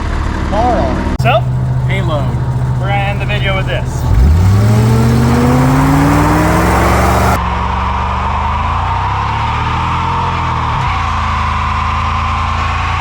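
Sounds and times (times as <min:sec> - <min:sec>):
truck engine revving: 0:01.2 - 0:07.4.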